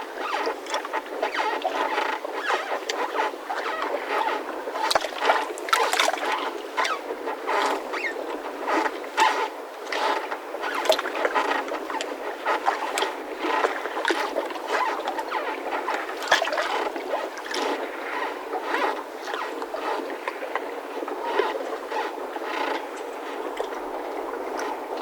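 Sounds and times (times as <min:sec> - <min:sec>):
mooring ropes creaking: 0:00.2 - 0:20.1.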